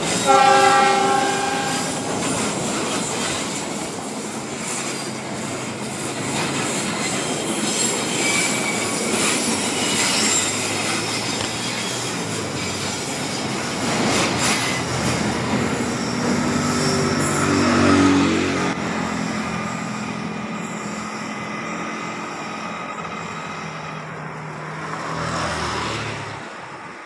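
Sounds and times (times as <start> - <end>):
train wheels squealing on rail: 0.0 - 26.0
wheels clicking over rail joints: 1.0 - 17.4.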